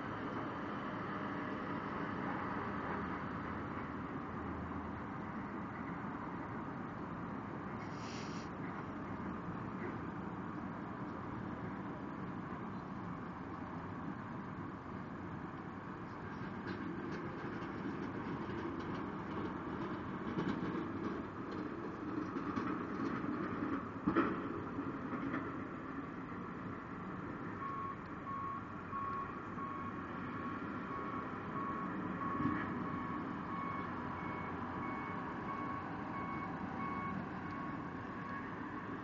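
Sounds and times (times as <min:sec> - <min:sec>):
reversing alarm beeping: 0:27.6 - 0:30.0, 0:30.9 - 0:38.6.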